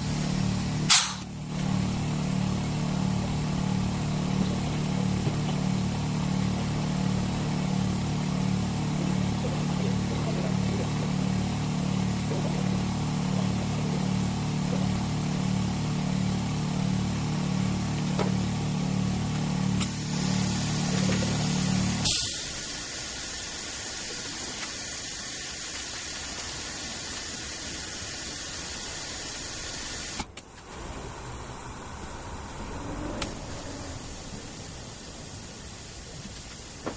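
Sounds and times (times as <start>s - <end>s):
pump humming: 0.0s - 24.5s
hiss: 0.9s - 1.3s, 19.8s - 36.9s.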